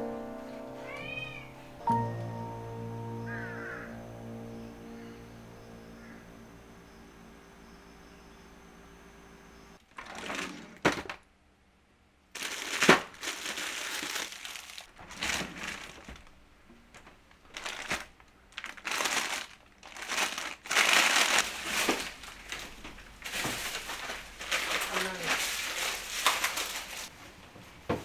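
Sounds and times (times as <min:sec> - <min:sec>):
plastic crinkling: 0:12.4 - 0:27.2.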